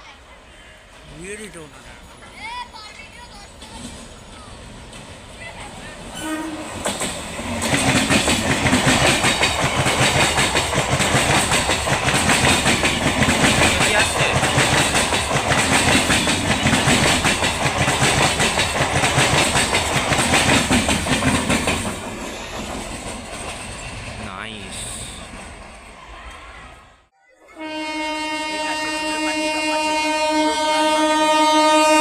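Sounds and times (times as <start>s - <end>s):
train wheels clattering over rail joints: 6.7s - 24.2s.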